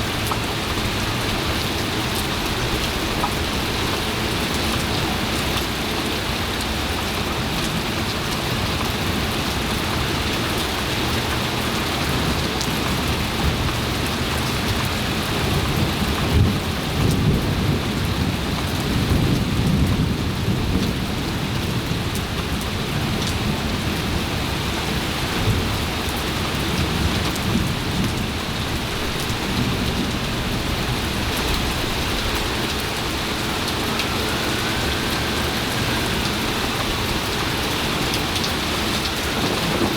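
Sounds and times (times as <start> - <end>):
heavy rain: 0.0 - 39.9
thunder rumbling: 28.2 - 39.9.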